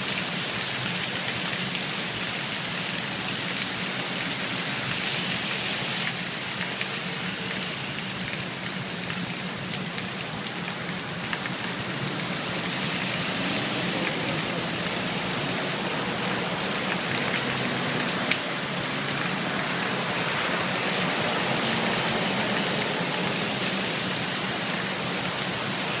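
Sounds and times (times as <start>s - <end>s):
heavy rain pattering: 0.0s - 26.0s.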